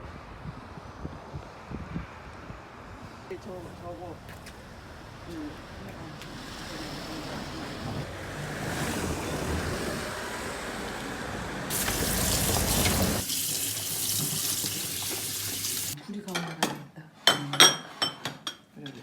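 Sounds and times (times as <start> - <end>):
tap water running into sink: 11.7 - 16.0.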